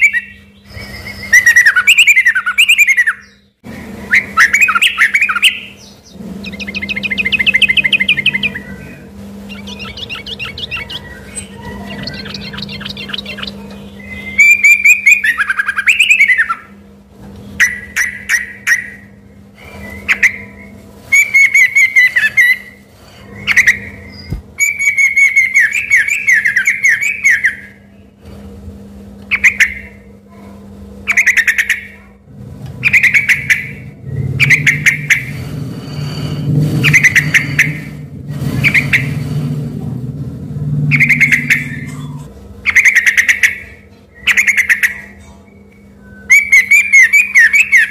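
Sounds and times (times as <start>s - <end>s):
bird singing whistled phrases: 0.0s - 3.5s, 4.1s - 16.7s, 17.6s - 28.0s, 29.3s - 30.0s, 32.8s - 35.3s, 40.9s - 47.9s
low hum: 0.0s - 47.9s.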